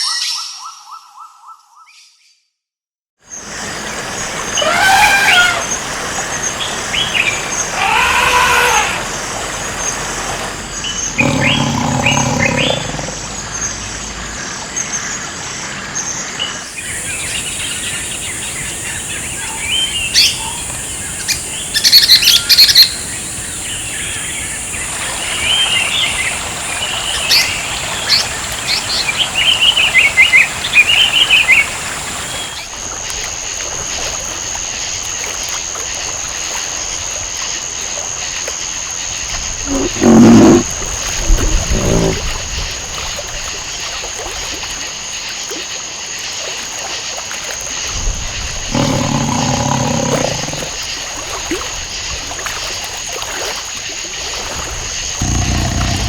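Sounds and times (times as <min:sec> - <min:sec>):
birds chirping: 0:09.7 - 0:14.1, 0:39.7 - 0:42.3, 0:48.7 - 0:50.8, 0:55.2 - 0:56.0.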